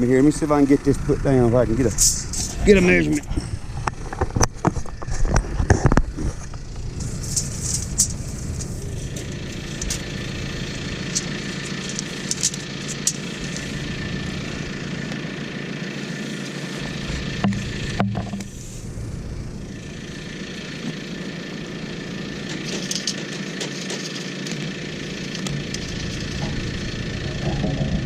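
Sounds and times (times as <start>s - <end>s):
tractor engine idling: 0.0s - 28.0s
sharp knocks and rattles: 17.3s - 18.6s, 25.3s - 28.0s.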